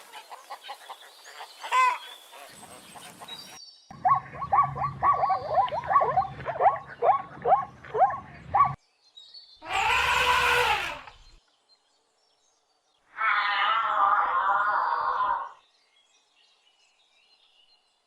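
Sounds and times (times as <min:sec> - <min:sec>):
quick short falling animal calls: 0:09.6 - 0:11.3
long harsh animal call: 0:09.6 - 0:11.4, 0:13.1 - 0:15.6.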